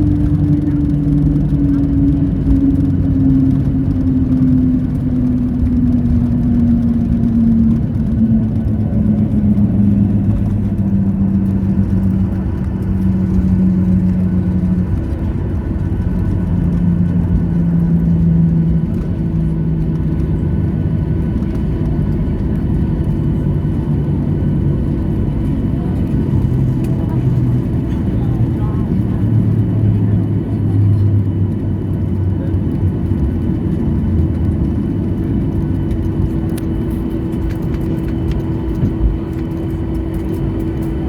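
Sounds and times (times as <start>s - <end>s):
jet engines spooling down: 0.0s - 41.0s.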